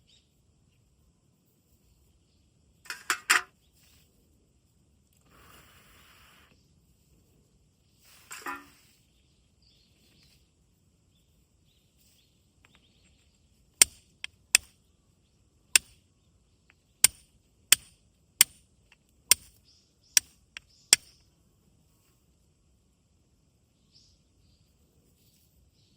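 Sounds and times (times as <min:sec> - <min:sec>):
flint striking fire steel: 0:13.8 - 0:14.8, 0:15.7 - 0:16.0, 0:17.0 - 0:18.6, 0:19.3 - 0:19.6, 0:20.2 - 0:21.2.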